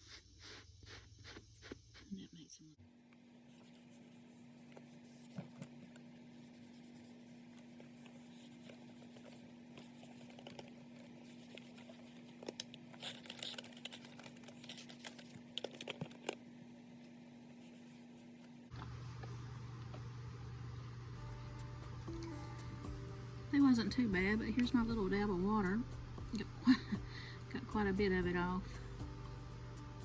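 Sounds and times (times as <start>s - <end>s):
scratchy rubbing and clicks: 6.4s - 16.3s
electric fabric shaver humming: 18.7s - 27.5s.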